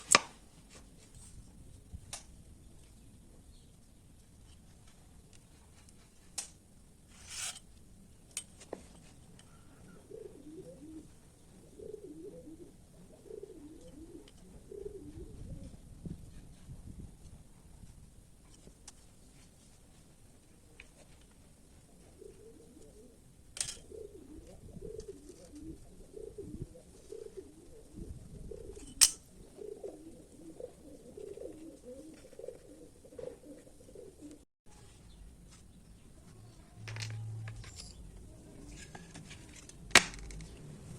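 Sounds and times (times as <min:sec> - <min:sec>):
dove cooing: 0:09.4 - 0:15.8, 0:21.7 - 0:34.4.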